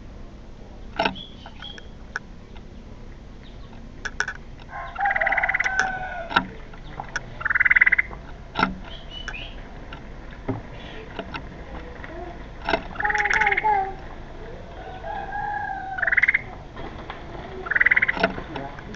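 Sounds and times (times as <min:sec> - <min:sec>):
harsh rasping bird calls: 0:00.8 - 0:18.9
sharp clicks: 0:00.9 - 0:02.7, 0:03.4 - 0:04.7, 0:05.4 - 0:14.1.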